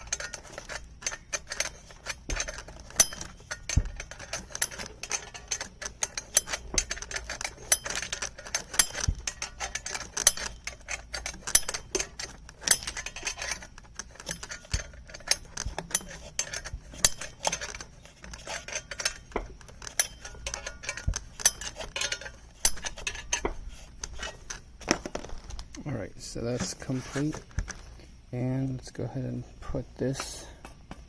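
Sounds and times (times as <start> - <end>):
hand tool clinking on metal: 0.0 - 24.4.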